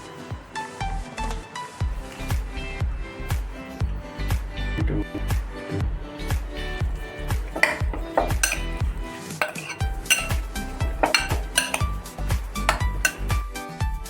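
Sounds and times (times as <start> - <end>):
background music with steady beat: 0.0 - 14.0
metal utensils scraping a bowl: 1.9 - 4.3, 6.1 - 13.4.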